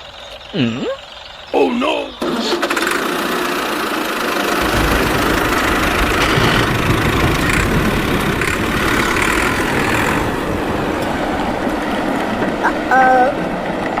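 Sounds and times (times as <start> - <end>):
engine idling: 0.0 - 14.0
deep low rumble: 4.6 - 12.6.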